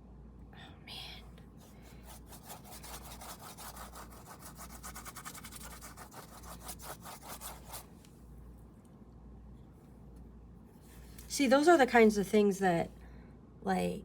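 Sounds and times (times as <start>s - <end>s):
paintbrush scrubbing paint: 1.8s - 7.9s.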